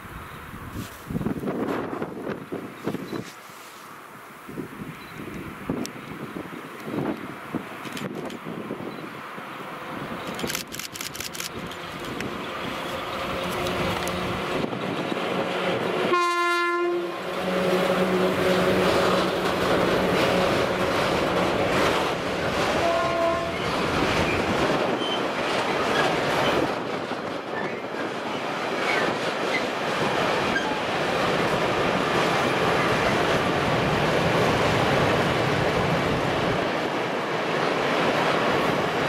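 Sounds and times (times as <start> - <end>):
freight train wheels rumbling: 4.6 - 39.0.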